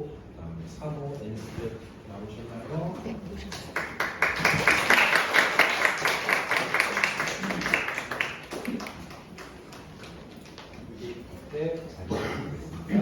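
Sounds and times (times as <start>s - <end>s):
audience applauding: 3.5s - 10.7s.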